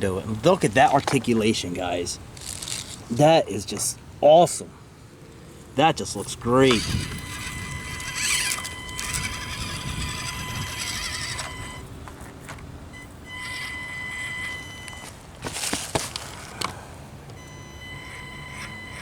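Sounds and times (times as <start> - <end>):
small electric motor whining: 6.6 - 11.9, 12.9 - 15.2, 17.4 - 19.0.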